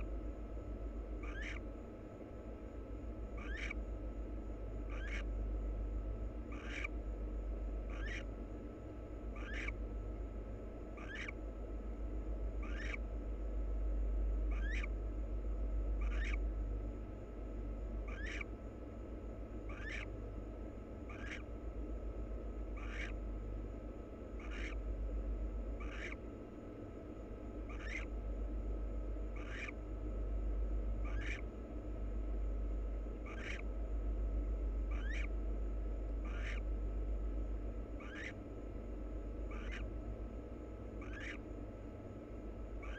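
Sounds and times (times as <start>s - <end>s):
low electrical hum: 0.0s - 42.9s
owl hissing calls: 1.2s - 1.7s, 3.4s - 3.8s, 4.9s - 5.3s, 6.5s - 7.0s, 7.8s - 8.3s, 9.3s - 9.8s, 10.9s - 11.4s, 12.6s - 13.1s, 14.5s - 15.0s, 16.0s - 16.4s, 18.1s - 18.6s, 19.7s - 20.2s, 21.0s - 21.5s, 22.7s - 23.2s, 24.3s - 24.8s, 25.7s - 26.3s, 27.6s - 28.1s, 29.3s - 29.8s, 31.0s - 31.5s, 33.2s - 33.7s, 34.9s - 35.4s, 36.2s - 36.7s, 37.9s - 38.5s, 39.5s - 39.9s, 41.0s - 41.5s.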